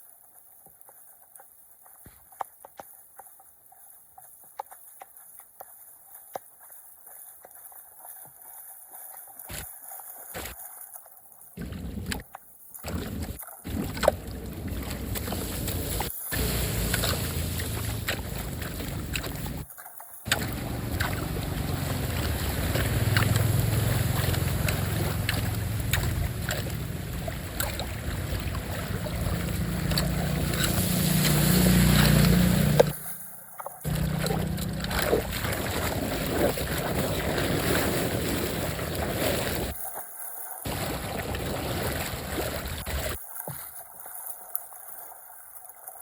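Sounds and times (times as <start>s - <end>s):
water rushing down drain: 12.8s - 33.0s, 33.8s - 39.8s, 40.6s - 43.2s.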